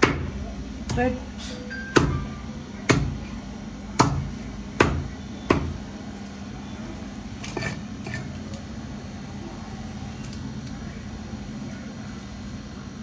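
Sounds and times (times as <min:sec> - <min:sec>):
blade chopping fish: 0:02.0 - 0:03.4, 0:04.0 - 0:05.8.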